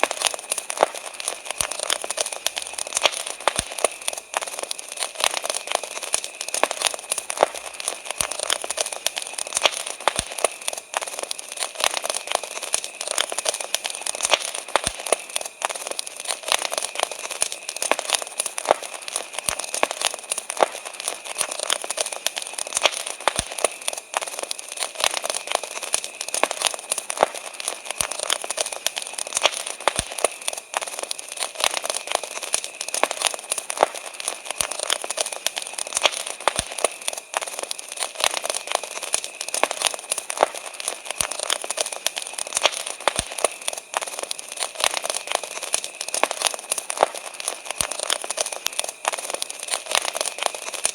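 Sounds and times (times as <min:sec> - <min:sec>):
wood fire crackling: 0:00.0 - 0:50.9.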